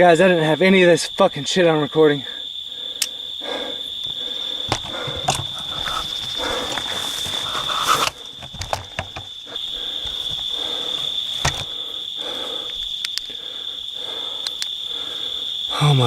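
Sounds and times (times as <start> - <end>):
insect trill: 0.0 - 16.0
sharp clicks: 3.0 - 3.2, 12.7 - 13.3, 14.4 - 14.8
rustling: 4.1 - 11.8.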